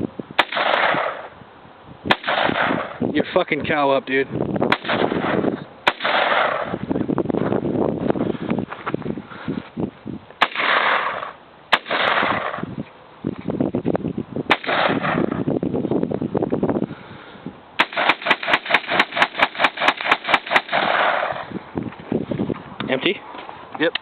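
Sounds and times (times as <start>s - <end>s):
rifle gunshots: 0.4s - 1.3s, 2.1s - 3.0s, 4.7s - 6.8s, 10.4s - 12.7s, 14.5s - 15.4s, 17.8s - 21.5s.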